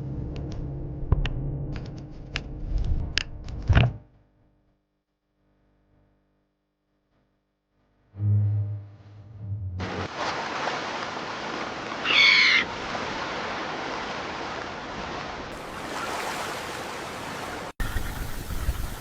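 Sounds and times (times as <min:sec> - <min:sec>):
steady rushing water noise: 0:09.8 - 0:19.0
high-pitched squawk-like call: 0:12.0 - 0:12.7.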